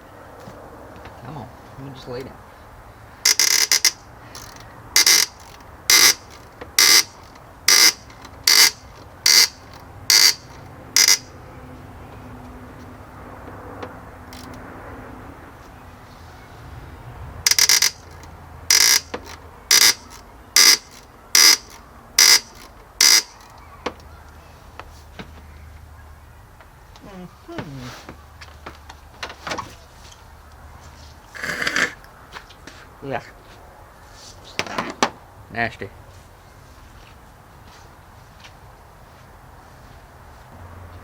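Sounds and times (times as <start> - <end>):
short electronic beeps: 3.3 - 11.3, 17.5 - 23.4.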